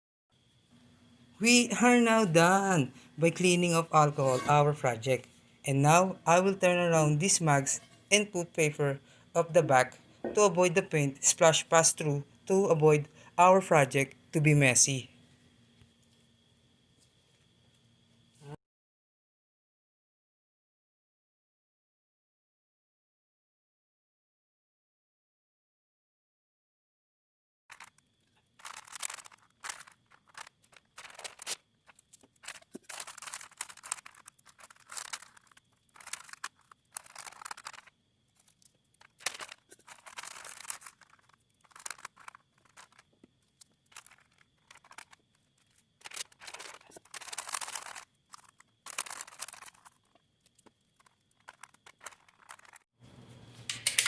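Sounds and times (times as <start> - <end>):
paper crinkling and tearing: 28.6 - 52.8.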